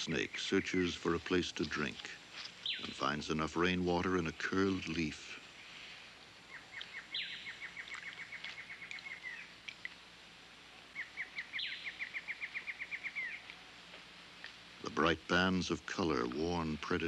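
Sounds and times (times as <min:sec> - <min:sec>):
bird trilling: 0:06.5 - 0:09.5, 0:11.0 - 0:13.5.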